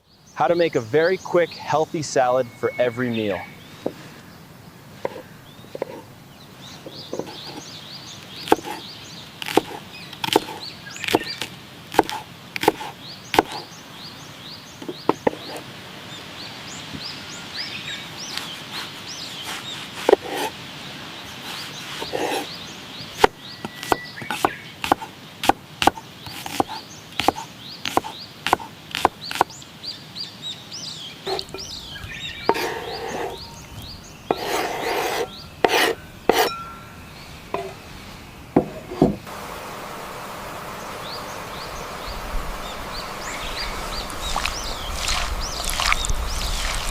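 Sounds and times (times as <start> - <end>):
birds chirping: 0.0 - 46.9
knife chopping on wooden board: 8.4 - 8.8, 9.4 - 13.7, 20.0 - 20.5, 23.2 - 29.5, 32.5 - 33.4, 34.3 - 36.6
dense noisy sound: 36.0 - 46.9.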